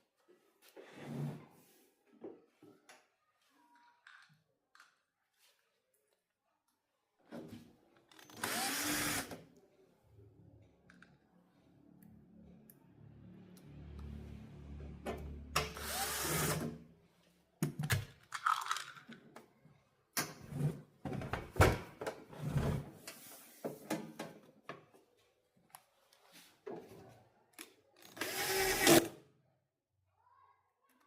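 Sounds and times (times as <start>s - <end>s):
small power drill running: 8.2s - 9.4s, 15.7s - 16.7s, 28.0s - 29.1s.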